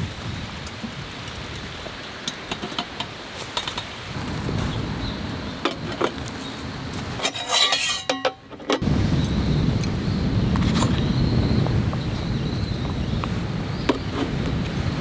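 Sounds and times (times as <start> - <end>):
metal utensils and dishes clinking: 7.2 - 8.8.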